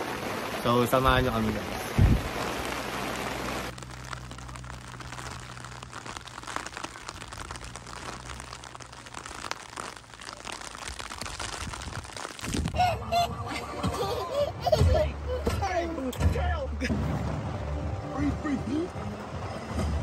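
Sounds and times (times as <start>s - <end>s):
heavy rain hissing: 0.0s - 15.4s
low rumble: 1.9s - 13.8s.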